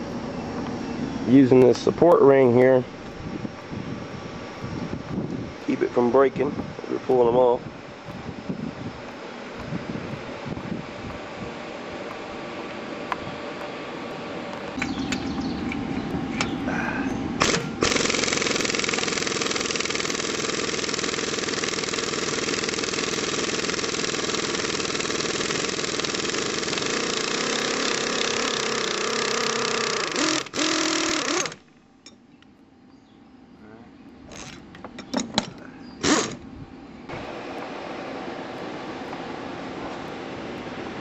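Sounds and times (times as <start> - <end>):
low hum: 0.0 - 41.0
power tool running: 12.0 - 31.7, 34.3 - 34.6, 36.0 - 36.5, 37.1 - 40.8.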